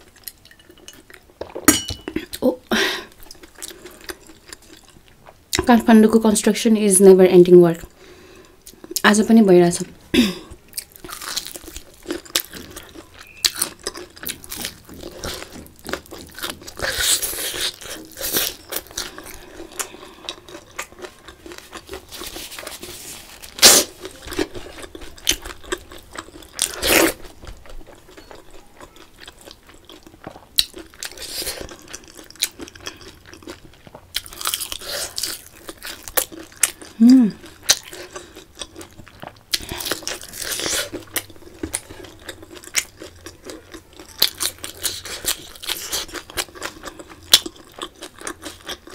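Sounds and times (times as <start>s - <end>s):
crisp crunches of eating: 10.2s - 48.9s
wet chewing: 10.7s - 48.9s.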